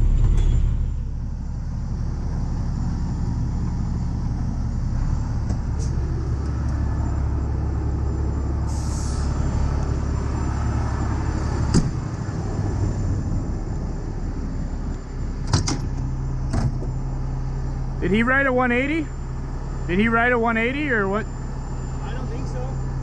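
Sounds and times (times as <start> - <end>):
truck engine rumbling: 0.0 - 23.0
air hiss: 8.7 - 9.5.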